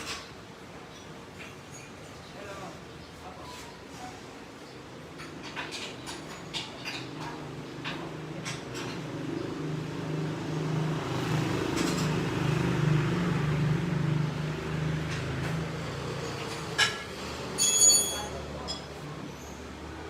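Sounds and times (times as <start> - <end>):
vehicle engine humming: 7.5 - 17.6.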